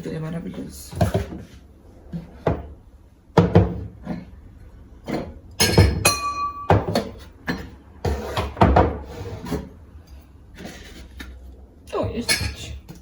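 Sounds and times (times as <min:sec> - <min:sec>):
objects knocking on cupboard surfaces: 0:00.9 - 0:01.5, 0:02.1 - 0:04.3, 0:05.1 - 0:09.1
glass clinking and ringing: 0:05.6 - 0:07.2.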